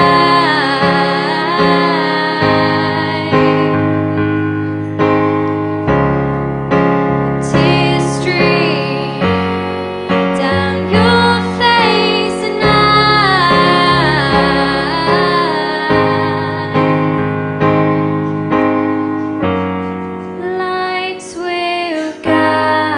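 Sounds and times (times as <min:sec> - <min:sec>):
person singing: 0:00.0 - 0:04.3, 0:07.4 - 0:18.4, 0:20.3 - 0:22.9
piano chords: 0:00.0 - 0:22.9.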